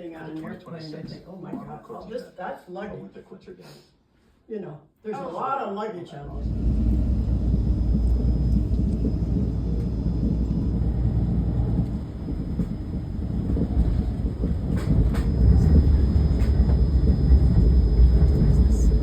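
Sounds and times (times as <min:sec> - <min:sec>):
vehicle engine rumble: 0:06.3 - 0:19.0
cabin noise: 0:06.4 - 0:19.0.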